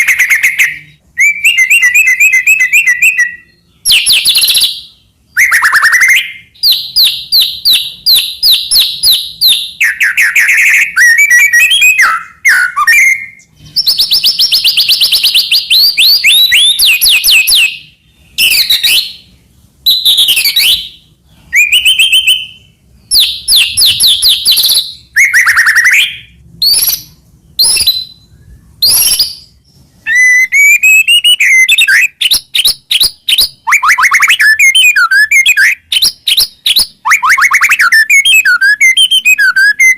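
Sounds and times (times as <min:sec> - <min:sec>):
songbird singing trills and whistles: 0:00.0 - 0:39.9.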